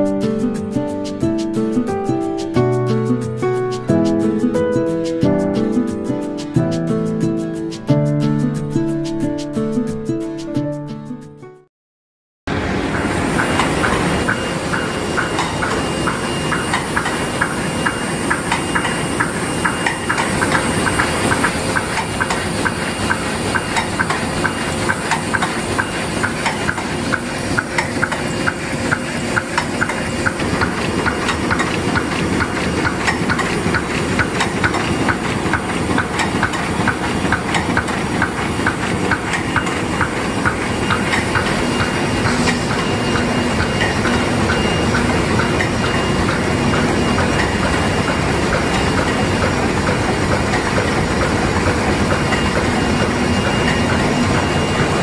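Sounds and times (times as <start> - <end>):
printing press clacking: 12.9 - 55.0.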